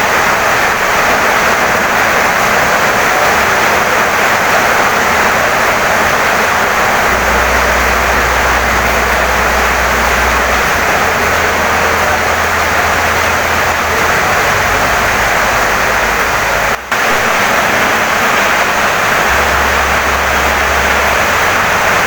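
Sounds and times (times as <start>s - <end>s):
heavy rain on a wooden house: 0.0s - 22.0s.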